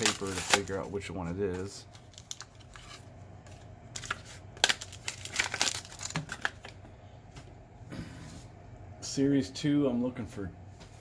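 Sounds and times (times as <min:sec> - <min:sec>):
plastic and paper crinkling: 0:00.0 - 0:06.8.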